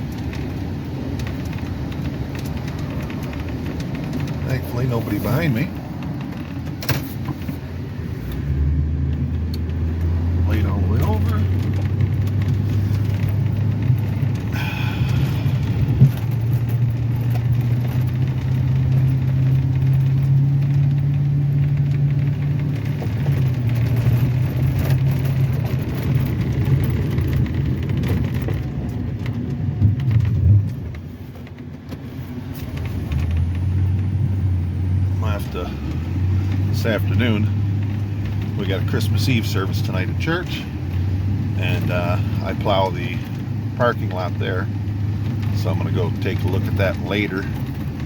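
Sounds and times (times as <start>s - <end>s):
truck engine revving: 1.7s - 31.1s, 32.3s - 48.0s.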